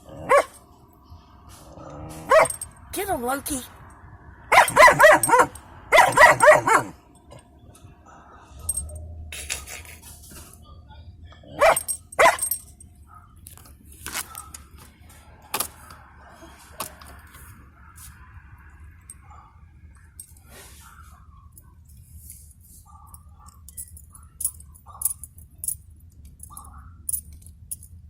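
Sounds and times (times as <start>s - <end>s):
puppy barking: 0.1s - 0.6s, 2.1s - 2.6s, 4.5s - 7.0s, 11.4s - 13.4s, 14.2s - 14.6s, 22.9s - 23.6s, 26.5s - 27.0s.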